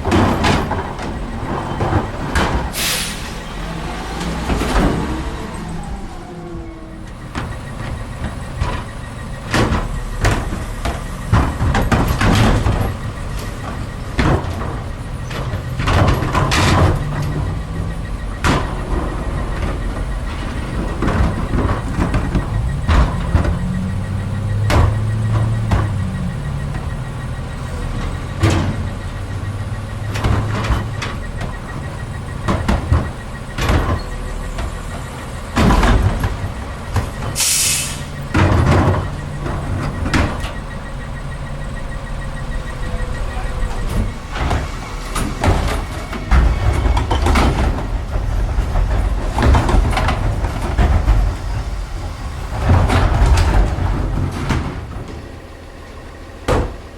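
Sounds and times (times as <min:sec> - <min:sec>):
cans and trash clanking: 0:00.0 - 0:03.4, 0:43.7 - 0:51.9
garbage truck engine: 0:00.0 - 0:56.9.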